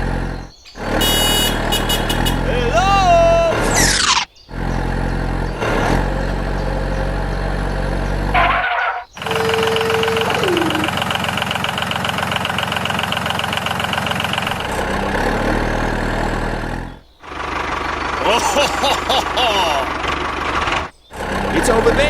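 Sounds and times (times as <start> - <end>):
engine chugging fast: 0.0 - 2.5, 3.2 - 8.5, 9.2 - 22.0
vehicle engine running: 0.0 - 2.5, 3.7 - 8.5, 9.2 - 22.0.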